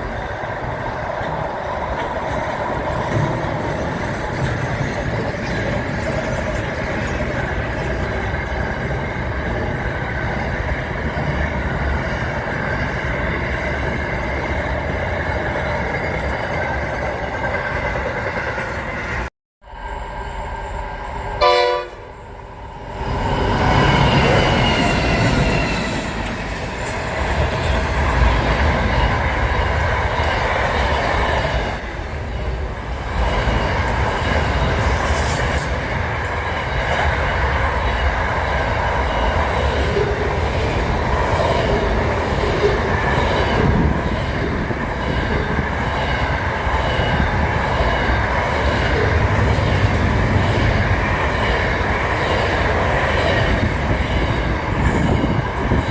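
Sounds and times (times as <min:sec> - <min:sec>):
train rumbling on rails: 0:00.0 - 0:55.9.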